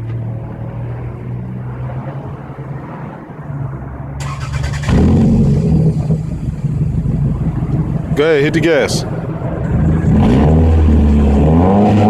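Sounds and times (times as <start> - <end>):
car engine idling: 4.2 - 11.4.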